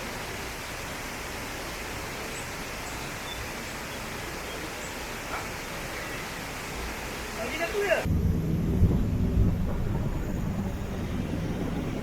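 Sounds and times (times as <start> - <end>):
water pouring over rocks: 0.0 - 8.1.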